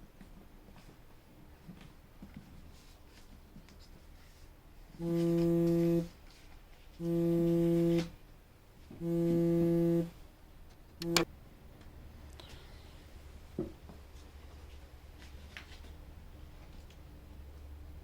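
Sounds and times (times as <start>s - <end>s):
steady horn-like tone: 5.0s - 6.2s, 7.0s - 8.1s, 9.0s - 10.2s, 11.0s - 11.3s.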